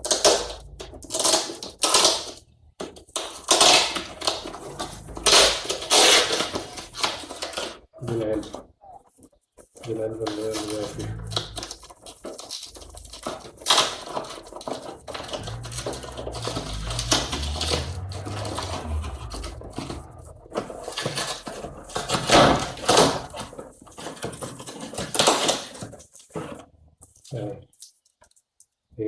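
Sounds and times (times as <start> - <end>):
packaging rustling and crinkling: 0.0 - 28.7.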